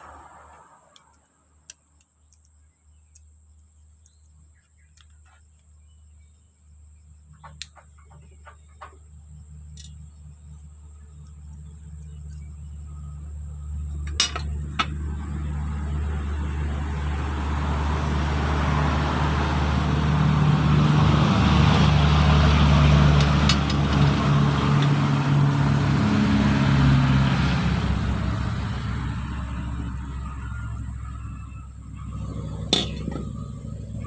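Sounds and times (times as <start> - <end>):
vehicle passing by: 0.0 - 1.6, 12.5 - 34.0.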